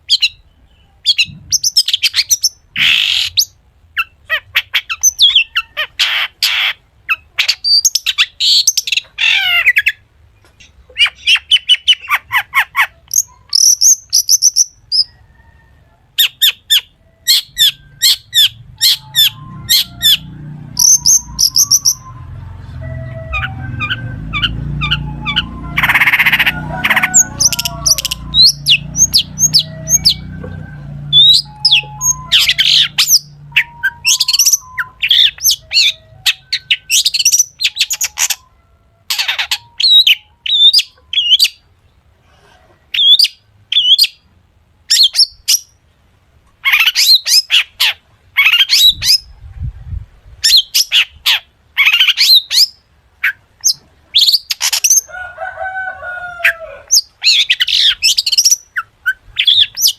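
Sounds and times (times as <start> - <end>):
bird singing chirps and whistles: 4.9 - 5.6, 16.2 - 38.5, 57.0 - 59.9.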